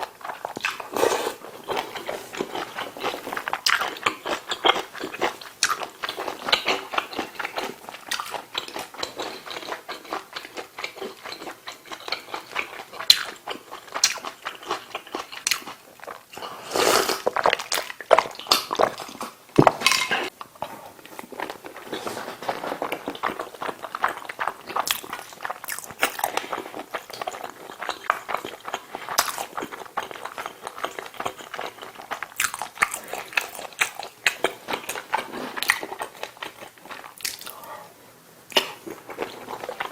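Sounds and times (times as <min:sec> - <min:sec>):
person chewing food: 0:00.0 - 0:39.9
mouth clicks and smacks: 0:37.1 - 0:37.6.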